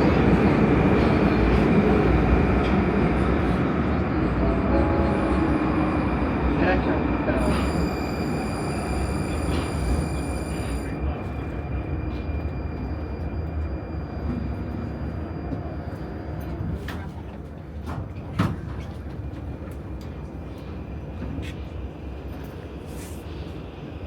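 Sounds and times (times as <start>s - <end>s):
metro train rumble: 0.0s - 24.0s.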